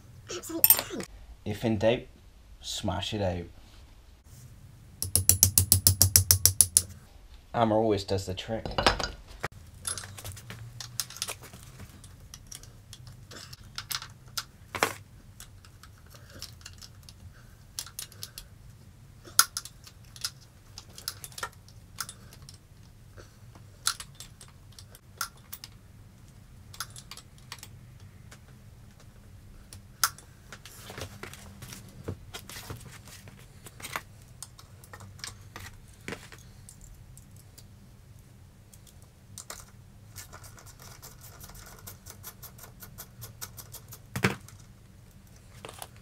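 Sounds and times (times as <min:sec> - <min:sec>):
metallic clinks of tools: 0:00.6 - 0:01.0.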